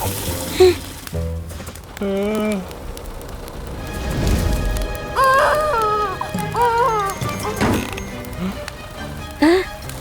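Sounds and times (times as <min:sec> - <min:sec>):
fire hose spraying water: 0:00.0 - 0:05.3
cartoon music: 0:05.2 - 0:08.1.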